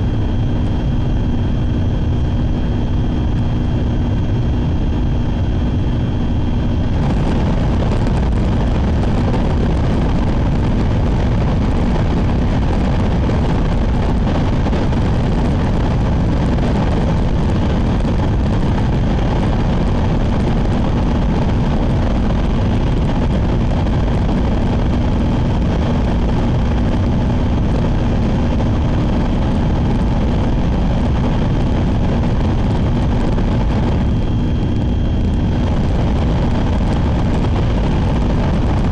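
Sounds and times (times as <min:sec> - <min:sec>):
rushing noise: 0:05.8 - 0:13.1.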